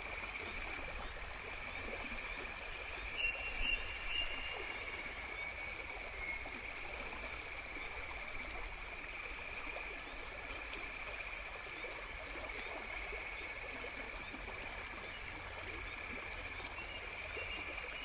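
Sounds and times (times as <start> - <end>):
insect short chirp: 0.2 - 11.2.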